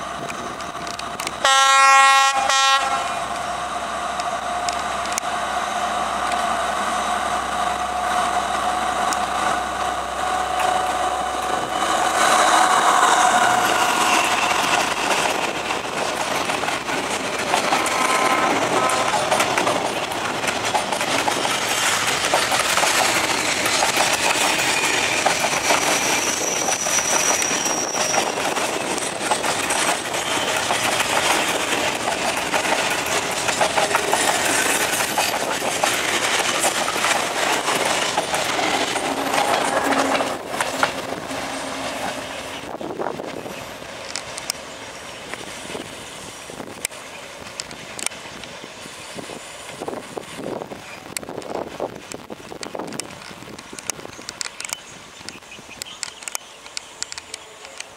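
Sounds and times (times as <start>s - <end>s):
diesel locomotive engine passing: 0.0s - 54.3s
wagons clickety-clack over rail joints: 0.2s - 1.5s, 8.2s - 57.9s
high wheel squeal: 17.8s - 19.2s, 24.5s - 30.9s.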